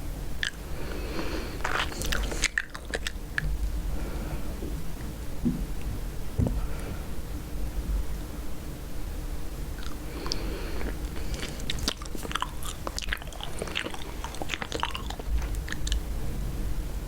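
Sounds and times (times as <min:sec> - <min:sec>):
low hum: 0:00.0 - 0:17.0
gum chewing smacks: 0:00.4 - 0:03.6, 0:09.8 - 0:16.0.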